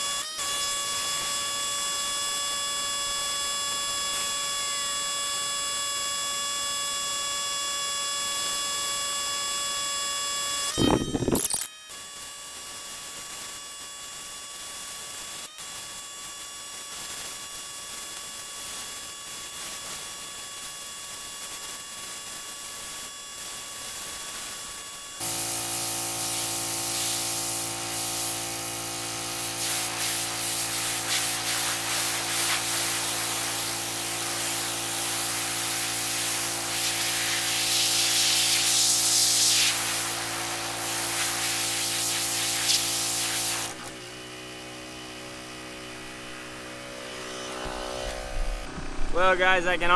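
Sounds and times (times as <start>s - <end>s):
pressure washer water spray: 25.2s - 43.9s.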